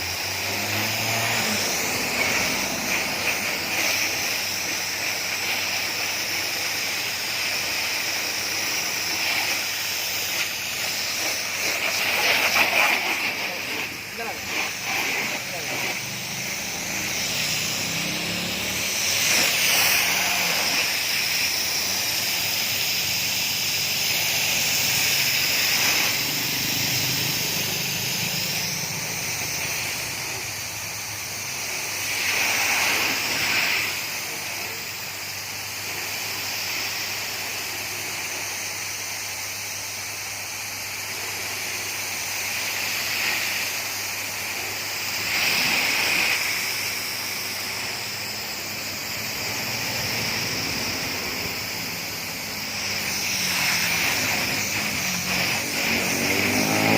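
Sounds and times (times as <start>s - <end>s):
low motor hum: 0.0s - 4.6s, 13.1s - 21.1s
pressure washer spray hissing: 0.0s - 56.9s.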